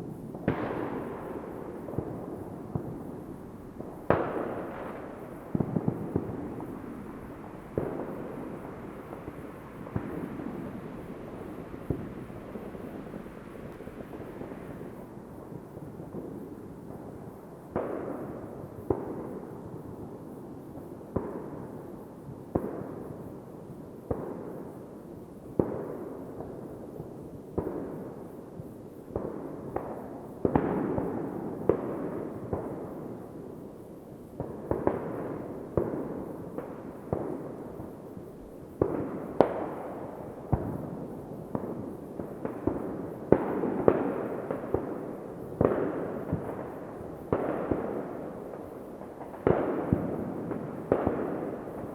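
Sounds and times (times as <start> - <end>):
distant fireworks bangs echoing: 0.0 - 19.5, 34.4 - 38.0, 38.8 - 51.9.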